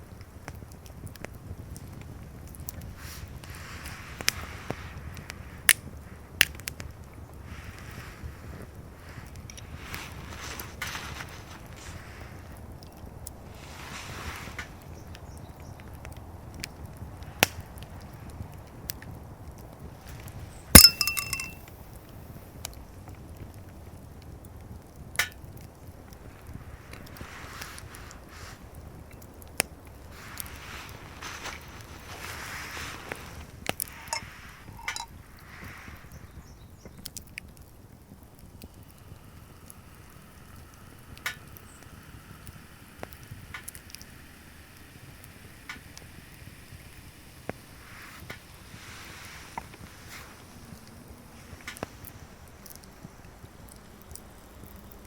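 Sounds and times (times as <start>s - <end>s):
faint steady hiss: 0.0s - 55.0s
wood fire crackling: 0.0s - 55.0s
short rattle: 20.8s - 21.6s, 33.9s - 35.1s
hard objects clinking: 20.8s - 21.7s, 33.9s - 35.1s.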